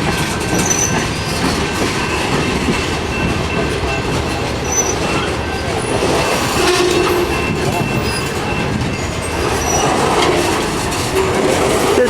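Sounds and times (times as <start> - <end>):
train wheels rumbling and rattling: 0.0 - 12.0
faint high wheel squeal: 0.5 - 2.5, 3.1 - 10.6.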